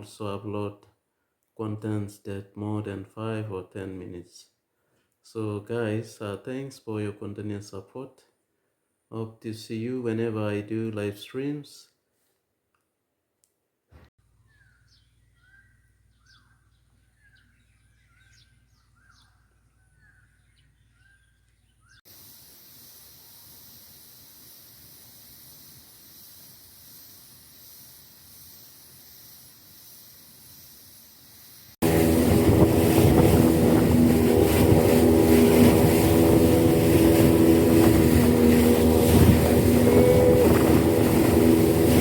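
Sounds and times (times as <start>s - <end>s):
faint steady hiss: 22.1s - 31.8s
low hum: 31.8s - 42.0s
outboard motor running: 31.8s - 42.0s.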